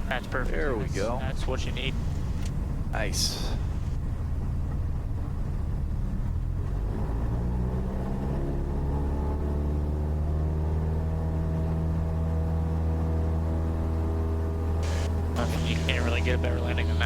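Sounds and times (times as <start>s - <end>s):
propeller engine throttling up: 13.8s - 17.0s.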